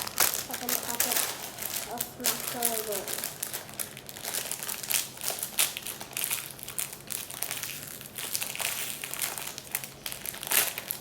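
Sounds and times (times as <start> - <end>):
packet crinkling and rustling: 0.0 - 11.0.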